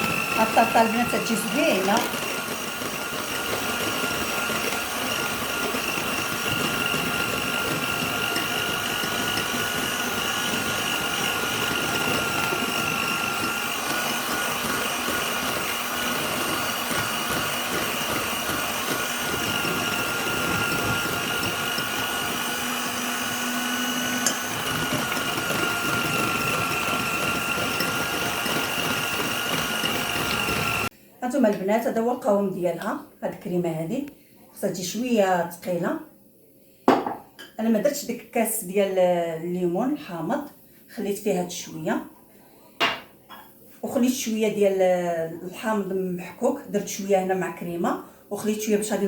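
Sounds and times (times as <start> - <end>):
electric mixer running: 0.0 - 30.9
mixer click: 24.0 - 30.8.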